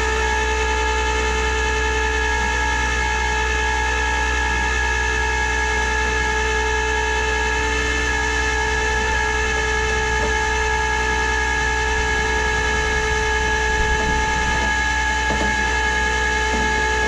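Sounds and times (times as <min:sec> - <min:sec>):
machine droning with whine: 0:00.0 - 0:17.0.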